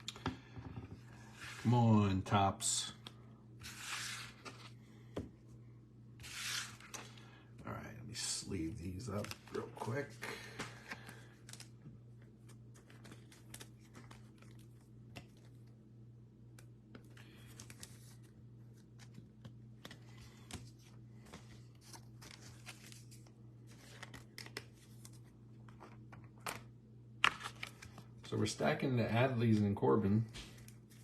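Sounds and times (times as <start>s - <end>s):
steady low hum: 0.0s - 31.0s
cards sliding into plastic sleeves: 3.0s - 4.8s, 6.2s - 7.2s.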